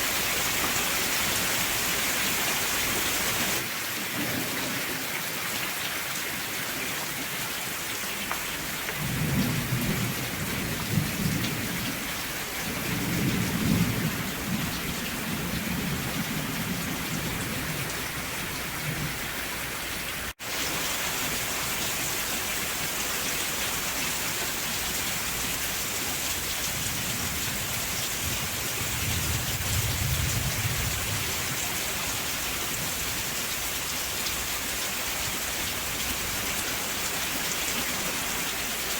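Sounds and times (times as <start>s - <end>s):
rain hissing on surfaces: 0.0s - 38.9s
distant thunder rumbling: 9.0s - 19.2s, 26.7s - 31.7s.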